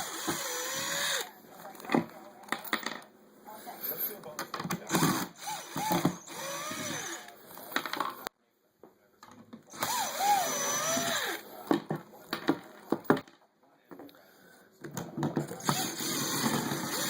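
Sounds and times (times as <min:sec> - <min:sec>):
cordless drill running: 0:00.0 - 0:01.4, 0:04.9 - 0:07.4, 0:09.7 - 0:11.4, 0:15.6 - 0:17.0.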